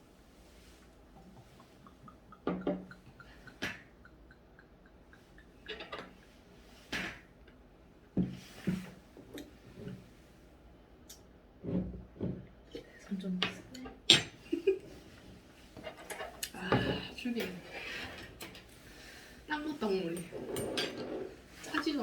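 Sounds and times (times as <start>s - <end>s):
dishes and cutlery clinking: 1.4s - 7.2s, 13.4s - 14.8s, 15.8s - 18.7s, 19.6s - 22.0s.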